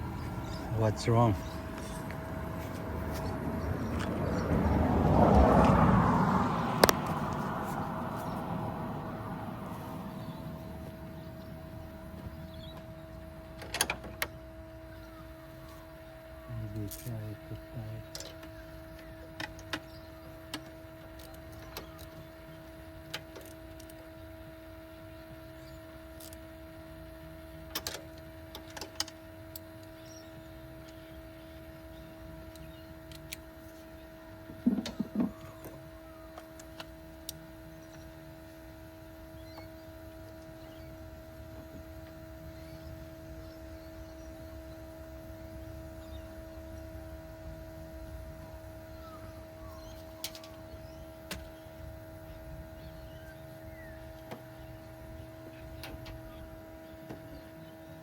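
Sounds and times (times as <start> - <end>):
machine hum: 0.0 - 21.4.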